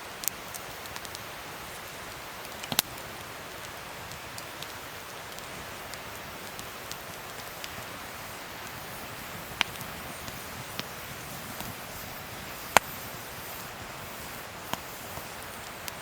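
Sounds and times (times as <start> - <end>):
wood fire crackling: 0.0 - 16.0
sharp pop from fire: 2.4 - 3.0, 9.4 - 13.2.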